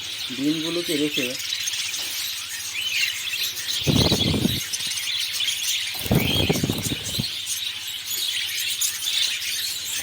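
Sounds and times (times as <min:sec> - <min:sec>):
budgerigars chirping and chattering: 0:00.0 - 0:10.0
loud rustling bursts: 0:03.8 - 0:04.8, 0:06.0 - 0:07.4.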